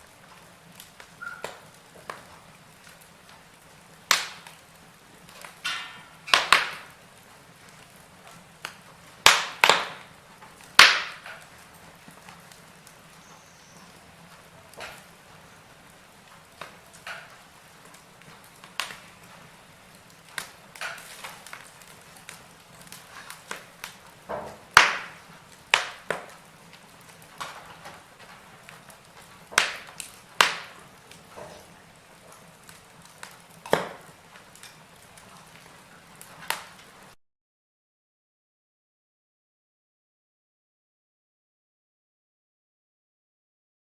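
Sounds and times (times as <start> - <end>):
logs crackling and popping: 0.0 - 37.2
faint hiss: 11.1 - 37.1.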